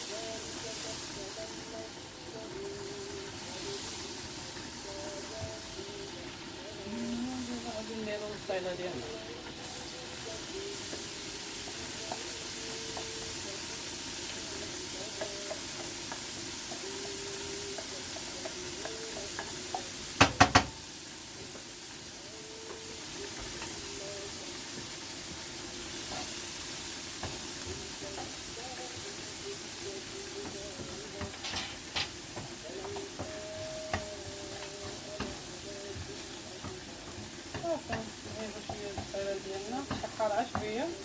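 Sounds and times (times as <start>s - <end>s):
onion sizzling in frying pan: 0.0s - 41.0s
stirring in pan: 0.0s - 41.0s.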